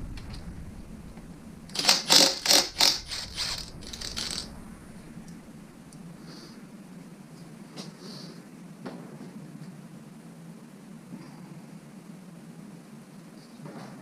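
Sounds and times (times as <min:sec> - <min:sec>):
ratchet wrench clicking: 0:01.7 - 0:04.4.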